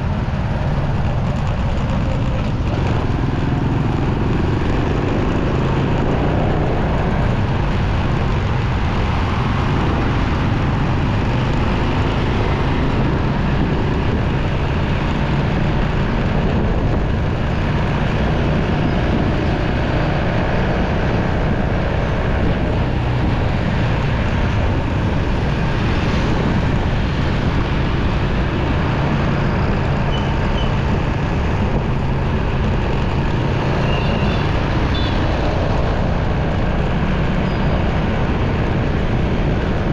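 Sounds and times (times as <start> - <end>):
motorcycle engine drone: 0.0 - 39.9
surrounding traffic: 0.0 - 39.9
wind rushing over microphone: 0.0 - 39.9.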